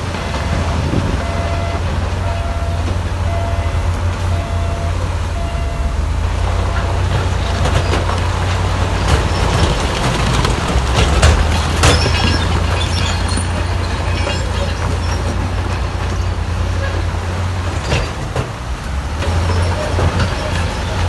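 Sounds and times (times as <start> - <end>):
diesel machinery engine drone: 0.0 - 21.0
metal clanks and rattles: 6.4 - 21.0.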